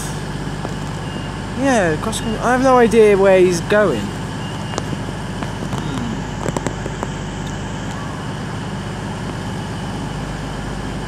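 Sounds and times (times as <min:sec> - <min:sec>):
diesel engines droning: 0:00.0 - 0:11.0.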